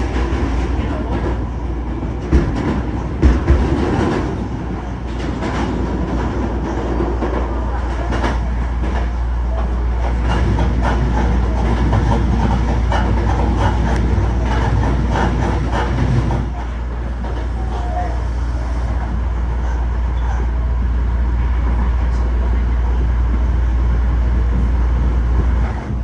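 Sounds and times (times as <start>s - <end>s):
electric train rumbling: 0.0s - 26.0s
wheels clattering over rail joints: 2.2s - 17.9s.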